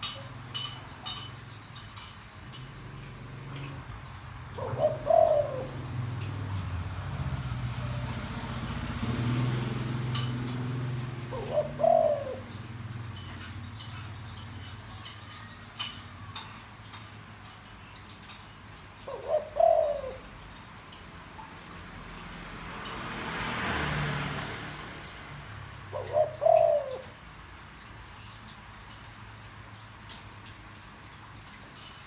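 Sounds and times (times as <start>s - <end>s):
dove cooing: 0.0s - 16.9s, 19.0s - 20.6s, 25.6s - 27.5s.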